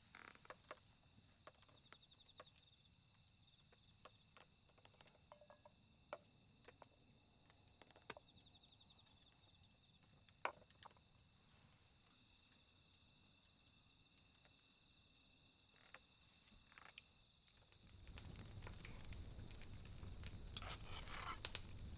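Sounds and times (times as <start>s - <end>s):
insects chirping: 0.0s - 21.9s
campfire crackling and popping: 16.8s - 21.9s.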